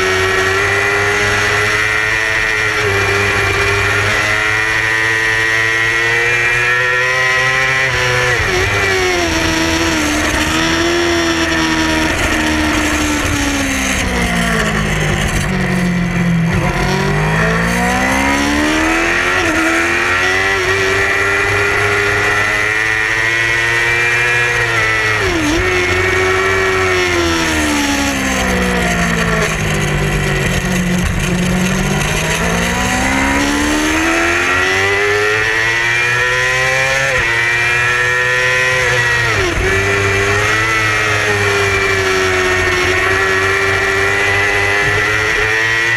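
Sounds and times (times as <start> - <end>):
motorcycle engine at high revs: 0.0 - 45.9.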